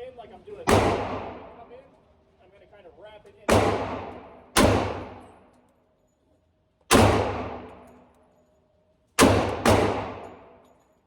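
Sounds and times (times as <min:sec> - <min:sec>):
pistol shots with echo: 0:00.7 - 0:01.6, 0:03.5 - 0:05.4, 0:06.9 - 0:07.9, 0:09.2 - 0:10.6.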